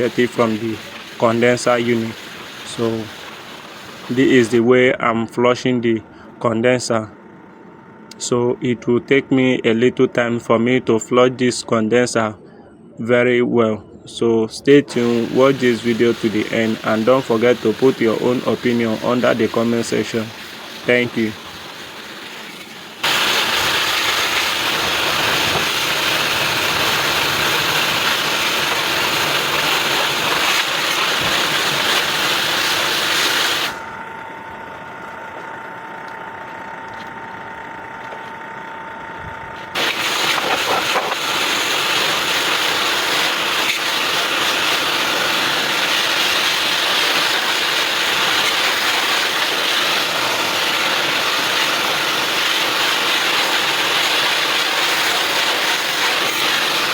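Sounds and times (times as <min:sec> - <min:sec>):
water jet hissing on metal coil: 0:00.0 - 0:04.6, 0:14.9 - 0:33.9, 0:39.6 - 0:56.9
steady machine hum: 0:00.0 - 0:56.9.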